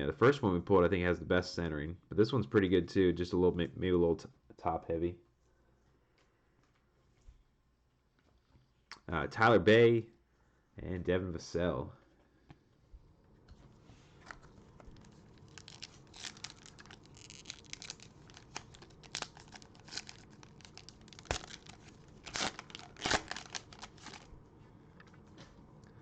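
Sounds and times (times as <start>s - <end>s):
cellophane wrapper tearing and crinkling: 14.8s - 24.3s.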